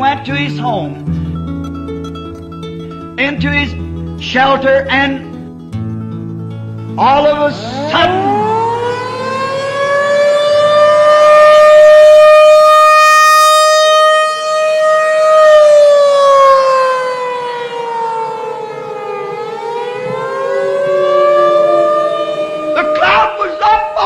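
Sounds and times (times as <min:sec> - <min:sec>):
civil defense siren wailing: 0:07.1 - 0:24.0.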